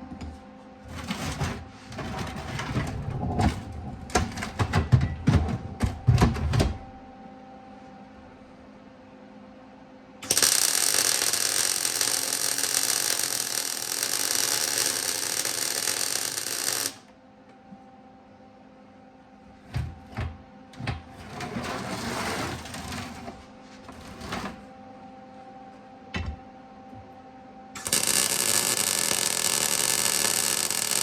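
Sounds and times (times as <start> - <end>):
welding arc crackling and hissing: 10.2 - 17.0, 27.8 - 31.0.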